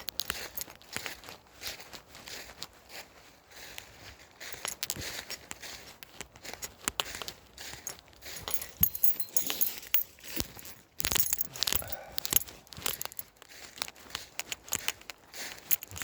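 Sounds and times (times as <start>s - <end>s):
keys jangling: 0.0s - 0.8s, 4.4s - 5.1s, 7.7s - 13.4s, 14.4s - 16.0s.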